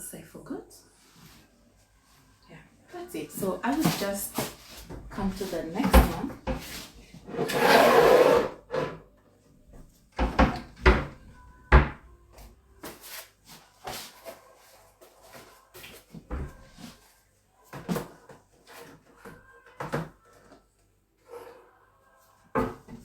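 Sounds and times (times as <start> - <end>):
wooden cupboard knocks and clatters: 3.7 - 6.8, 9.8 - 12.0, 16.2 - 16.8.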